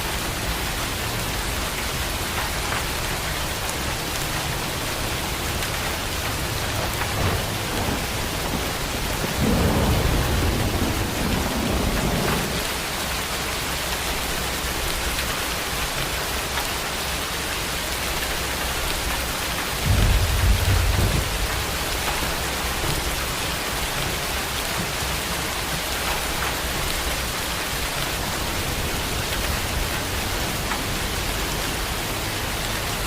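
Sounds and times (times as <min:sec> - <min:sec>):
heavy rain falling: 0:00.0 - 0:33.0
rolling thunder: 0:06.4 - 0:12.9, 0:19.8 - 0:24.6.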